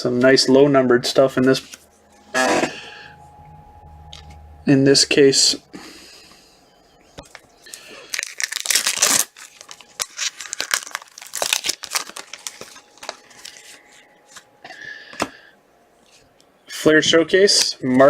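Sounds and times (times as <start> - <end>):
cards rustling and clicking: 7.3 - 14.5
wrapper tearing and crinkling: 7.6 - 13.8.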